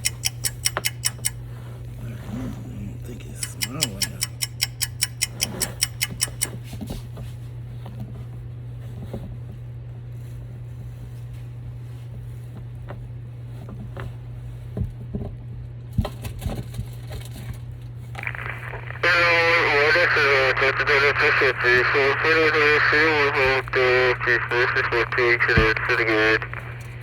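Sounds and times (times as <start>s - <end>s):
steady low hum: 0.0s - 6.6s, 18.1s - 27.0s.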